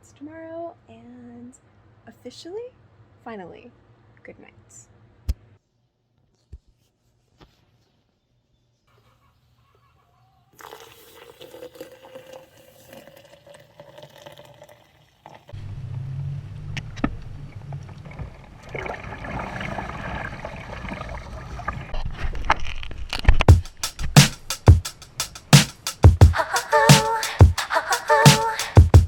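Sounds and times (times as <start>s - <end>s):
low water rumble with splashing: 15.6s - 22.5s
water sloshing: 16.8s - 22.9s.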